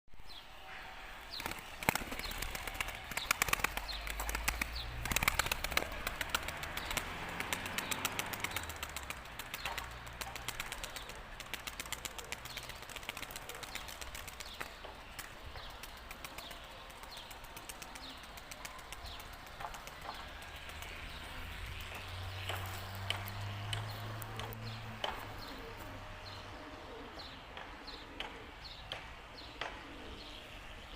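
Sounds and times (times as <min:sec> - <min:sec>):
wing flutters: 0:01.3 - 0:21.0
pigeons clicking: 0:01.4 - 0:26.0, 0:26.6 - 0:30.3
pigeon cooing: 0:24.3 - 0:28.4.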